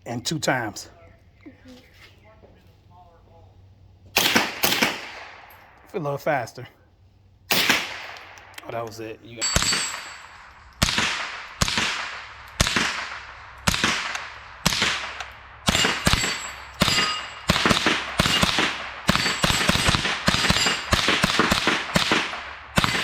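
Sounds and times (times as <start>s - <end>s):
suppressed gunshots with ringing tail: 4.1s - 5.9s, 7.2s - 23.0s.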